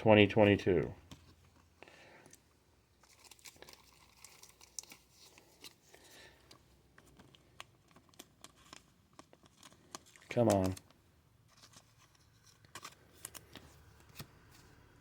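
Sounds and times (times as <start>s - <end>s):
card wrappers rustling: 1.1s - 15.0s
cards clicking: 12.6s - 14.5s.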